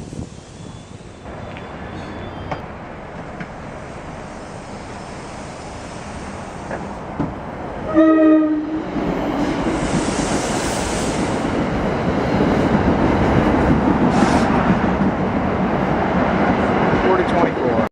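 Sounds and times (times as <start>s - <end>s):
train running past: 0.0s - 17.9s
train horn blast: 7.9s - 8.9s.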